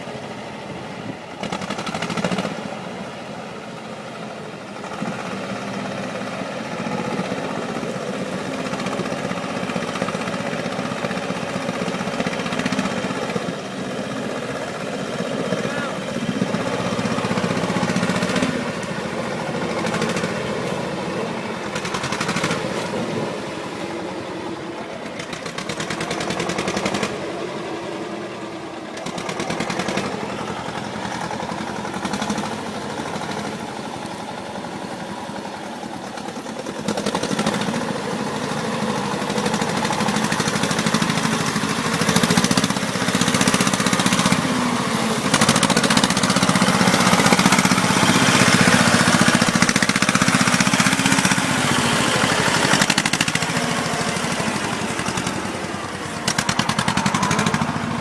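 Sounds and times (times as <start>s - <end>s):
heavy vehicle engine running hard: 0.0s - 58.0s.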